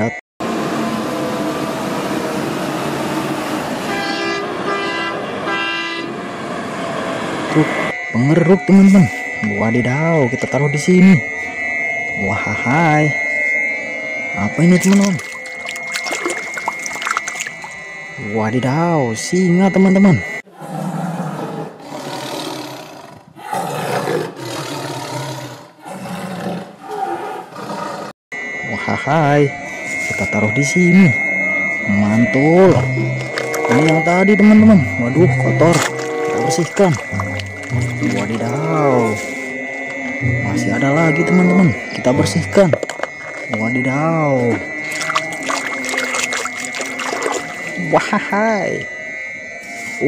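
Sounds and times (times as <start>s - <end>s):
vehicle horn honks: 3.8s - 6.2s
lion roaring: 20.5s - 28.1s.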